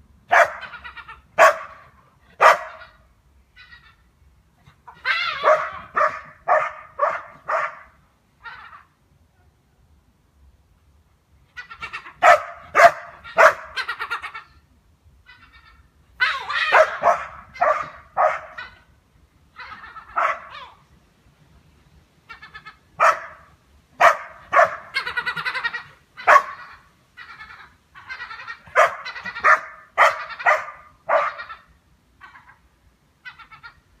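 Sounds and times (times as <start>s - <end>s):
dog barking: 0.3s - 0.7s, 1.4s - 1.8s, 2.4s - 2.9s, 5.4s - 7.9s, 12.2s - 13.7s, 16.7s - 18.6s, 20.2s - 20.5s, 23.0s - 23.4s, 24.0s - 24.9s, 26.3s - 26.6s, 28.7s - 31.5s.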